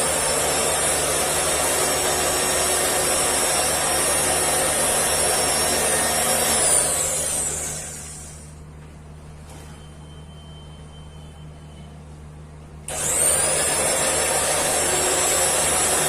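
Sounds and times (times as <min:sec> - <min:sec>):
electric cutter motor whine: 0:00.0 - 0:08.4, 0:12.9 - 0:16.0.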